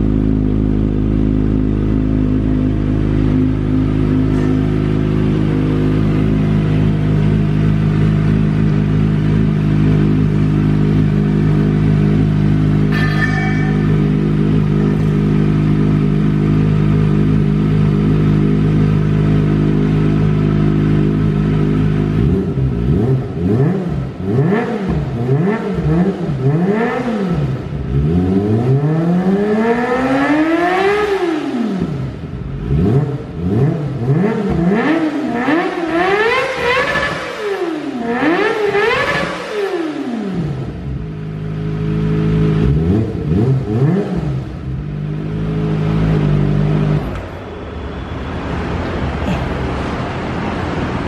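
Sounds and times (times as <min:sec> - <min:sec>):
motorcycle engine idling and revving: 0:00.0 - 0:51.0.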